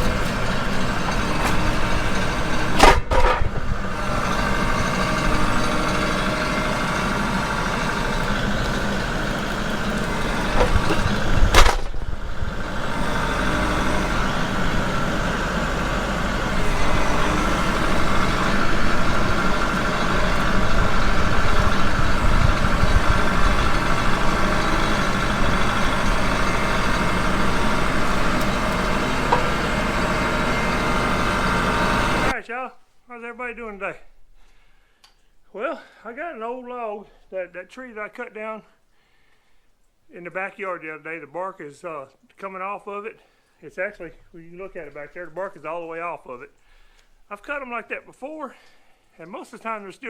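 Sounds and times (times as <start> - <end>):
sawmill engine running: 0.0 - 32.4.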